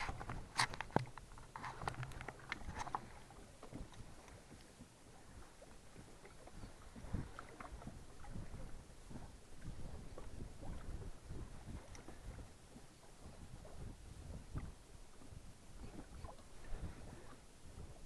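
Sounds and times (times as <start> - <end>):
light knocks and clicks in boat: 0.0 - 18.0
small waves against boat: 0.0 - 18.0
wind rumble: 6.0 - 18.0.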